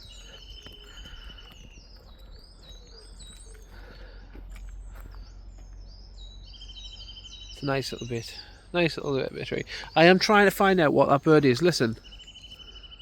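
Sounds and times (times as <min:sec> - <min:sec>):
bird trill: 0:00.0 - 0:13.0
songbirds singing: 0:00.0 - 0:13.0.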